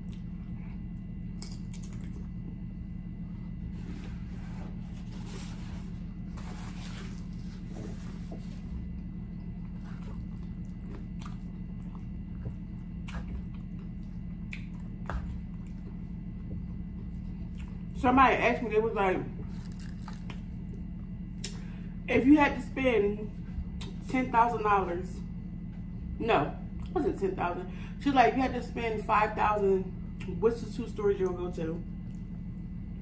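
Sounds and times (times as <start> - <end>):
person chewing with crunching: 0.0 - 18.0, 19.4 - 21.8
steady low hum: 0.0 - 33.0.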